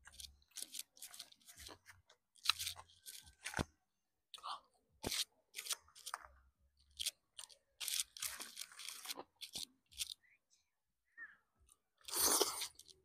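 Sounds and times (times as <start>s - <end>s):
crunchy chewing: 0.0s - 3.7s, 5.0s - 10.2s, 12.0s - 13.0s.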